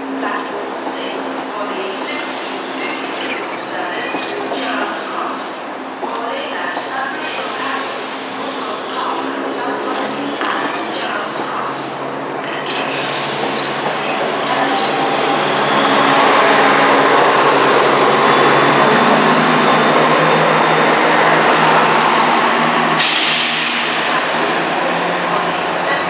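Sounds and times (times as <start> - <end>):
air hiss: 5.9 - 9.2, 21.4 - 24.7.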